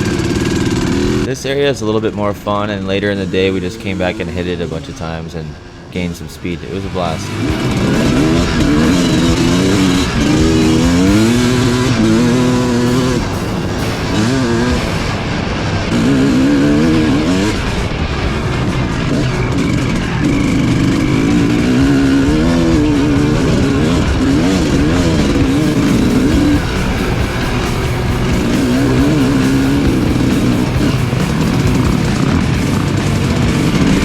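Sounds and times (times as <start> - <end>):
dirt bike engine revving: 0.0 - 34.0
background music: 2.2 - 34.0.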